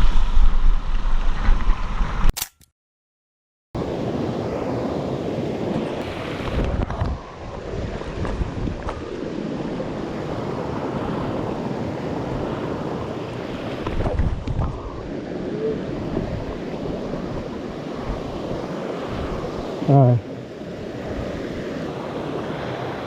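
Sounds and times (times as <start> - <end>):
wind buffeting microphone: 5.6 - 19.8.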